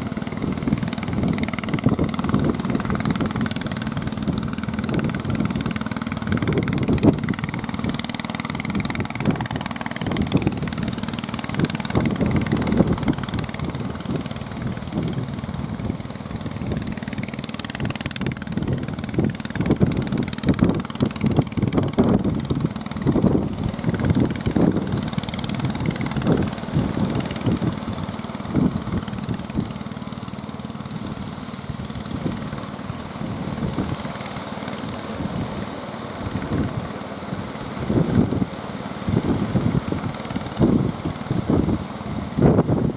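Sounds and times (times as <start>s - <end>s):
gusty noise: 0.0s - 29.8s
boat engine running: 0.0s - 42.9s.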